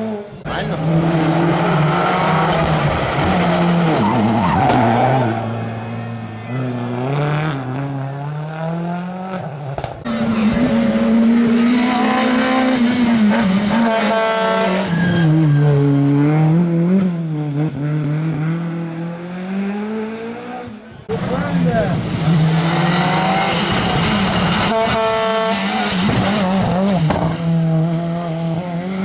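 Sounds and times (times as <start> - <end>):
rally car engine revving: 0.0 - 29.0
tyre squeal: 0.6 - 7.0, 13.8 - 16.6, 22.4 - 27.4.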